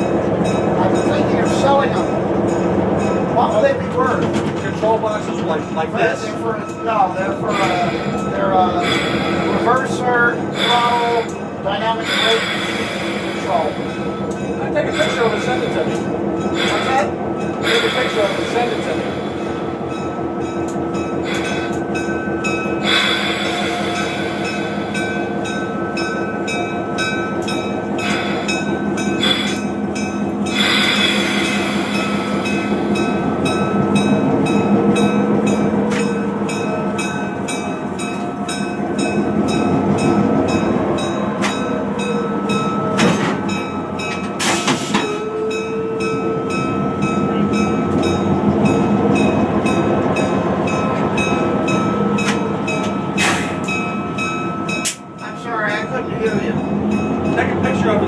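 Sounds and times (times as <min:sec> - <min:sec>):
wheels clicking over rail joints: 0:00.0 - 0:41.7
locomotive engine drone: 0:00.0 - 0:58.0.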